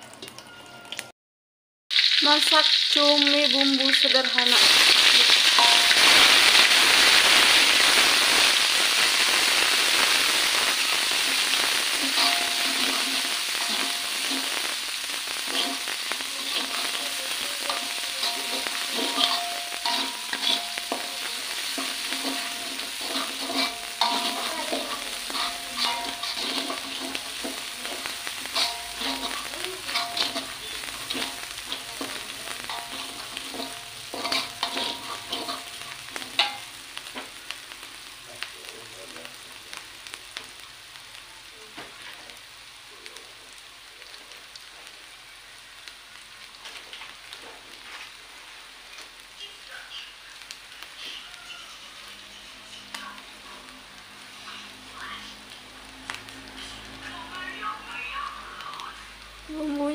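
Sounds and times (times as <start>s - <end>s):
paste sizzling in hot oil: 1.9s - 59.9s
metal spatula scraping a pan: 12.0s - 14.6s, 15.4s - 36.7s.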